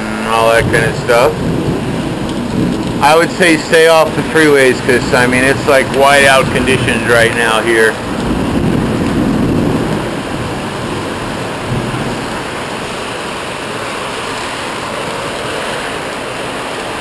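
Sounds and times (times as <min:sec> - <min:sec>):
low rumble: 0:00.0 - 0:13.1
heavy rain pouring: 0:00.0 - 0:17.0.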